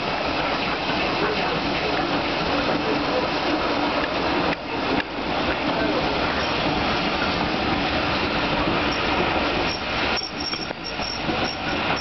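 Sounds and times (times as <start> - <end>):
train coaches rumbling on rails: 0.0 - 12.0
high wheel squeal: 8.9 - 12.0.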